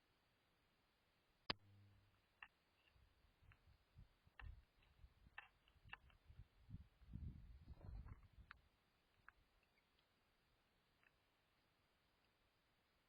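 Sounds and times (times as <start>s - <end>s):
light taps and clicks: 2.4s - 6.4s.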